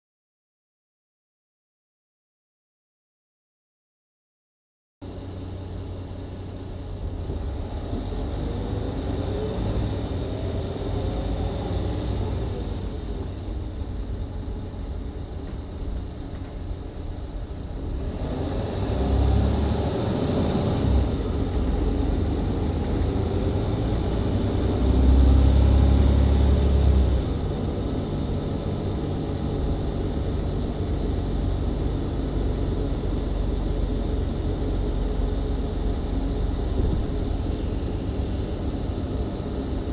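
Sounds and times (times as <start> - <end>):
bus engine pulling away: 5.0 - 39.9
heavy low rumble: 10.1 - 39.9.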